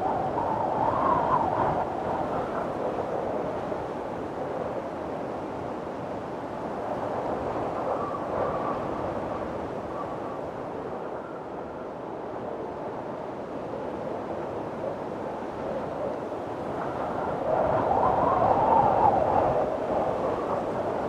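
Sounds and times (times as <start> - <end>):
wind blowing in gusts: 0.0 - 21.0.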